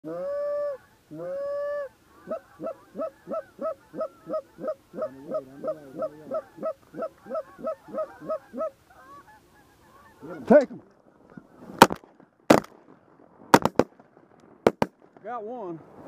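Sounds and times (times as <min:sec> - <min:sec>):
lower wavering goose voice: 0:00.0 - 0:10.5
goose honking: 0:00.1 - 0:11.5
goose clucking: 0:00.1 - 0:11.6.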